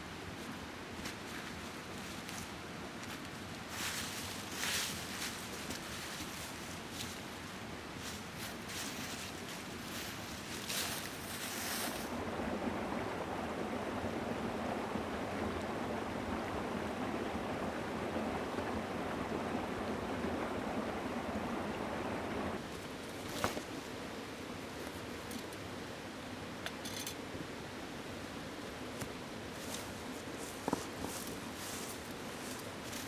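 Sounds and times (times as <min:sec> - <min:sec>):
mountain stream rushing: 0:00.0 - 0:33.0.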